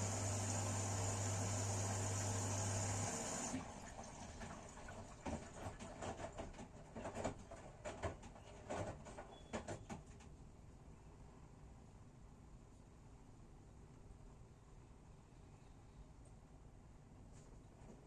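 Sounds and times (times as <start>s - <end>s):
washing machine humming: 0.0s - 10.6s.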